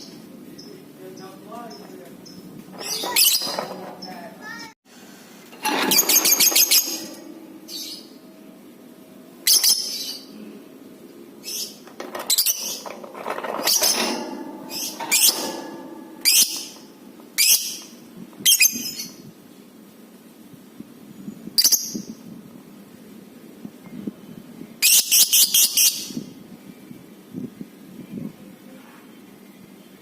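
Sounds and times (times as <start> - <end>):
bird chirping and chattering: 0.6 - 4.4.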